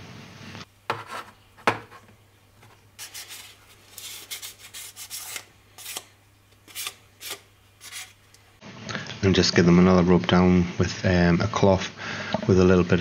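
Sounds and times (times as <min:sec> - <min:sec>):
sandpaper rubbing: 0:03.0 - 0:06.1, 0:06.7 - 0:08.2.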